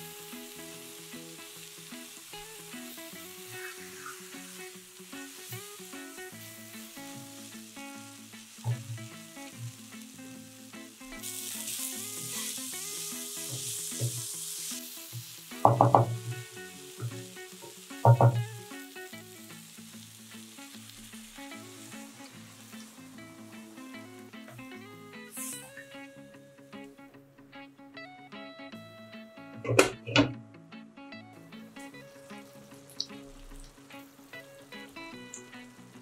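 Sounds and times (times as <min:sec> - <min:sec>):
chicken sizzling in a pan: 0:00.0 - 0:26.7, 0:31.4 - 0:36.0
soft guitar music: 0:00.0 - 0:36.0.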